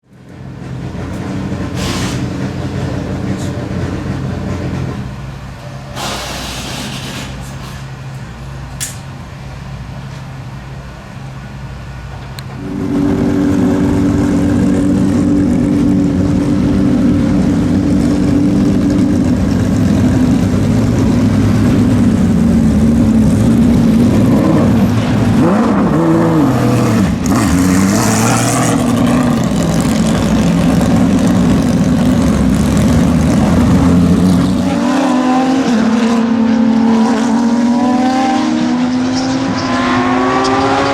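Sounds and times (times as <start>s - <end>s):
race car engine revving: 12.4s - 40.9s.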